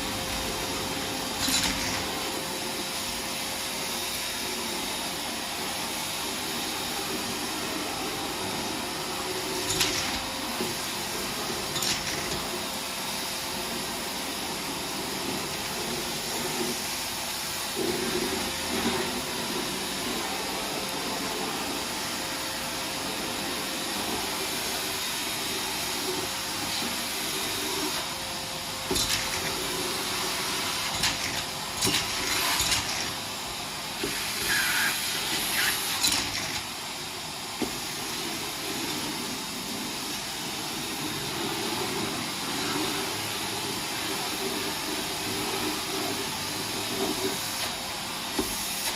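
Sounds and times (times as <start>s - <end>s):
vacuum cleaner running: 0.0s - 48.9s
debris rattling in vacuum: 28.8s - 34.6s.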